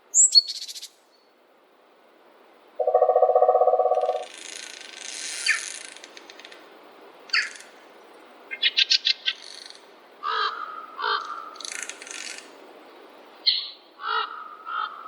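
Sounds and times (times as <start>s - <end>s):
faint steady hiss: 0.0s - 15.0s
forest birds calling: 2.8s - 4.3s, 13.4s - 15.0s.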